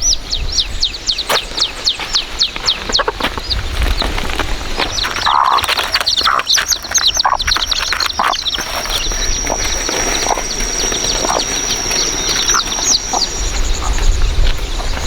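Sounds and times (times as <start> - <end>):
chicks peeping: 0.0 - 15.0
hen clucking: 0.8 - 15.0
steady high-pitched tone: 8.4 - 14.5.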